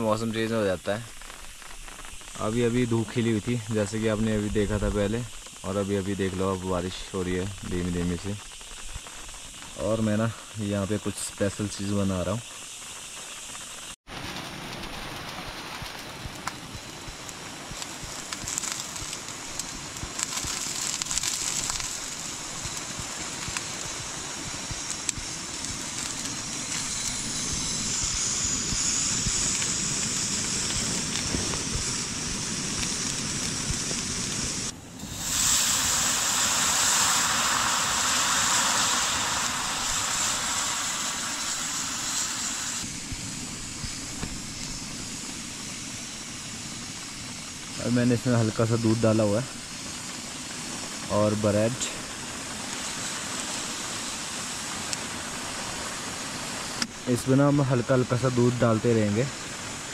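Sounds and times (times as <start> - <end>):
rain pattering on a tent: 0.0 - 34.8
gas stove hissing: 0.0 - 59.9.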